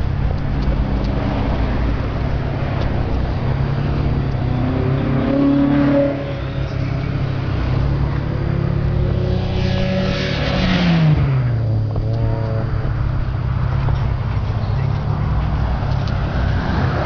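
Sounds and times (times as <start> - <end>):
car engines running: 0.0 - 17.0
engine revving: 0.4 - 17.0.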